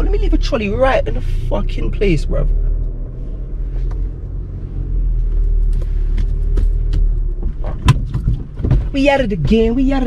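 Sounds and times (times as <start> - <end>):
car engine running at low speed: 0.0 - 10.0.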